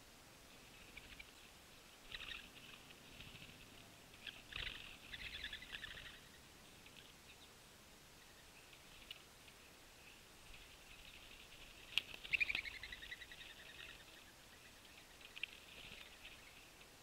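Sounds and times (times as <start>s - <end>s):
faint outdoor background noise: 0.0s - 17.0s
small birds chirping: 0.0s - 17.0s
soft low rustle: 0.4s - 7.4s.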